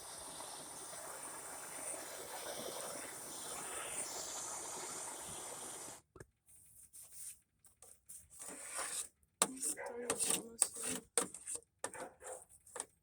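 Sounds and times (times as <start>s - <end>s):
gas torch hissing: 0.0s - 6.0s
faint knocks and scrapes: 6.2s - 13.0s.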